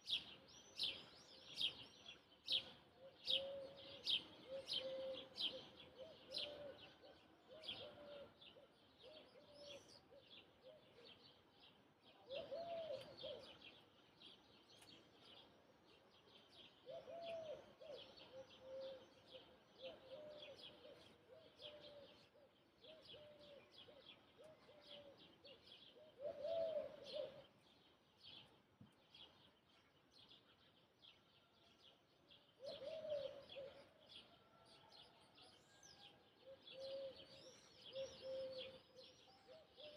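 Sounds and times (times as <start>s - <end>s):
small birds chirping: 0.0s - 39.9s
dove cooing: 3.0s - 11.2s, 12.2s - 13.8s, 16.8s - 27.5s, 32.6s - 34.1s, 36.4s - 39.9s.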